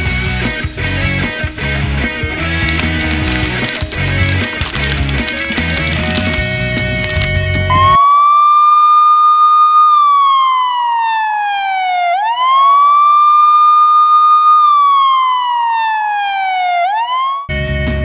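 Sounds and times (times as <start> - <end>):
police siren wailing: 7.8 - 17.5.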